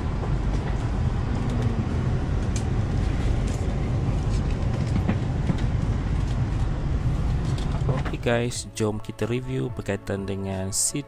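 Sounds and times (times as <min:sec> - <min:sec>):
train interior rumble and hum: 0:00.0 - 0:11.0.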